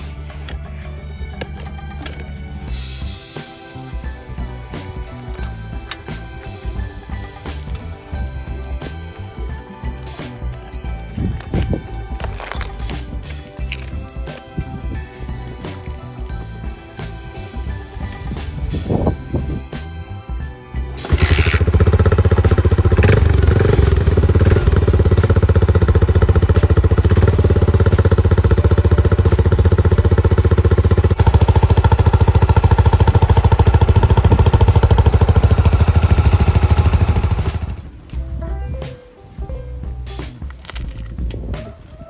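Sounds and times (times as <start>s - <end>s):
motorcycle engine running: 21.0s - 38.0s.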